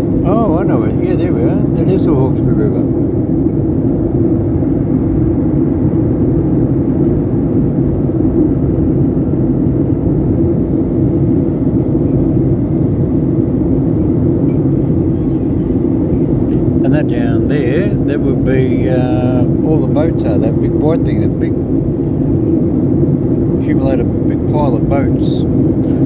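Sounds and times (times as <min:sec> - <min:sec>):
airliner cabin drone: 0:00.0 - 0:26.0.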